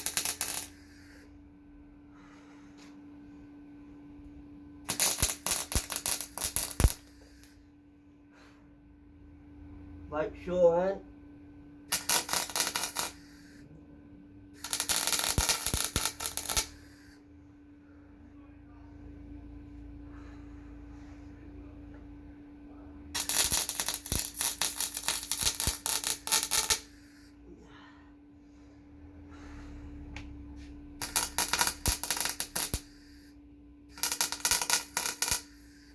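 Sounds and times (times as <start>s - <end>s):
welding crackle: 0.0s - 1.2s, 4.9s - 7.5s, 11.9s - 13.6s, 14.6s - 16.9s, 23.2s - 27.2s, 31.0s - 33.3s, 33.9s - 35.9s
low hum: 13.6s - 35.0s.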